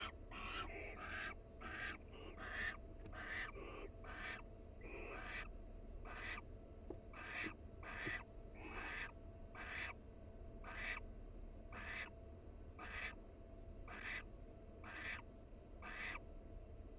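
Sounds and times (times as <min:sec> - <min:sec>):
barn owl raspy hissing calls: 0:00.0 - 0:05.5, 0:06.1 - 0:06.4, 0:07.2 - 0:10.0, 0:10.6 - 0:11.0, 0:11.7 - 0:12.1, 0:12.8 - 0:13.2, 0:13.9 - 0:14.2, 0:14.8 - 0:15.2, 0:15.8 - 0:16.2.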